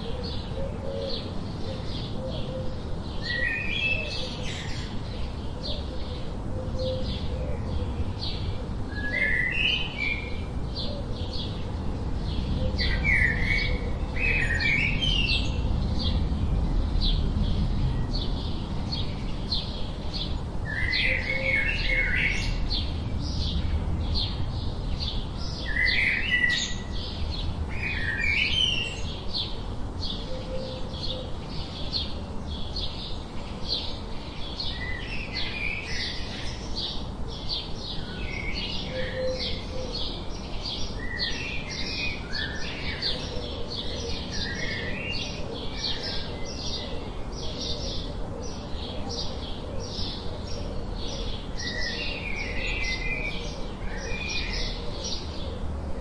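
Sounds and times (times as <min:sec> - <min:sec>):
birds chirping: 0:00.0 - 0:55.8.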